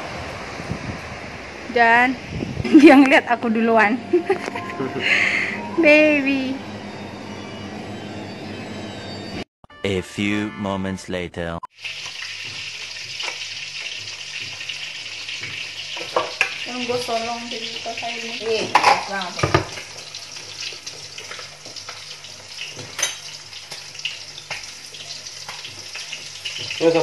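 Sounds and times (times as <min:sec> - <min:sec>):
voice: 0:01.7 - 0:04.9, 0:05.8 - 0:06.6, 0:09.8 - 0:11.7
chicken sizzling in hot oil: 0:11.8 - 0:27.0.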